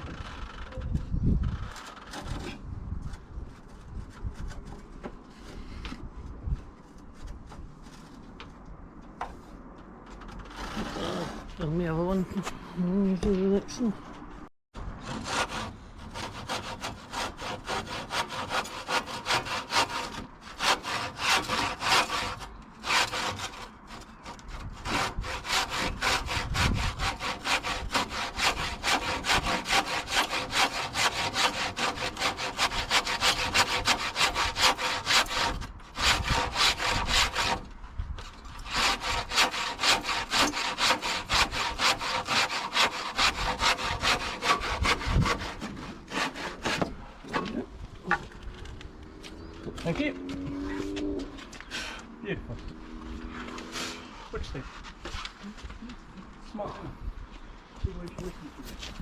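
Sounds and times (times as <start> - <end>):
handsaw cutting timber: 10.3 - 12.2, 15.0 - 37.7, 38.5 - 47.4.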